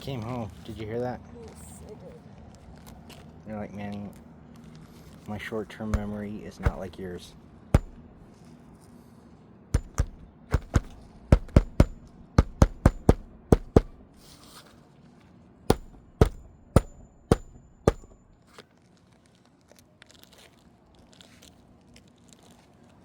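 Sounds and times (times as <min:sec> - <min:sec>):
hammer striking roofing nails: 0:05.8 - 0:07.0, 0:07.8 - 0:08.2, 0:09.8 - 0:14.1, 0:15.7 - 0:18.3.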